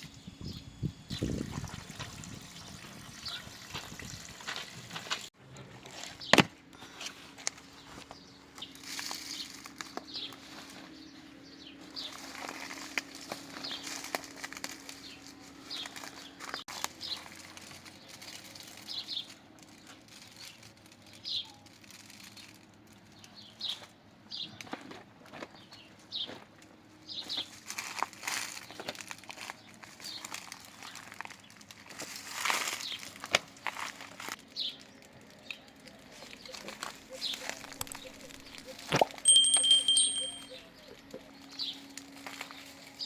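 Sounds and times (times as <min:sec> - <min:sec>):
birds chirping: 0:36.2 - 0:41.9.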